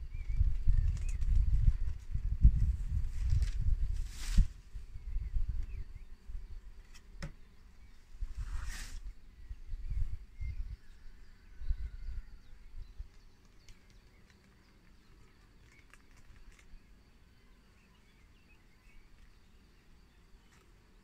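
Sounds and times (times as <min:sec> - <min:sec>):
faint insect hum: 0:00.0 - 0:21.0
faint bird chirps: 0:04.7 - 0:21.0
small clicks: 0:13.1 - 0:15.0.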